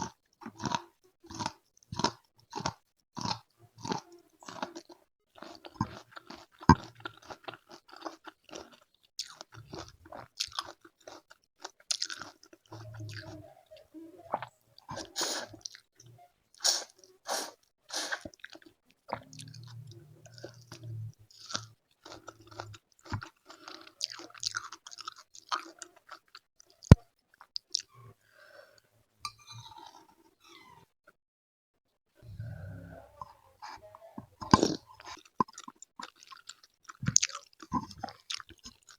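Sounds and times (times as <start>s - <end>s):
crunchy bites and chewing: 0.0s - 13.3s, 20.3s - 27.0s, 34.4s - 38.9s.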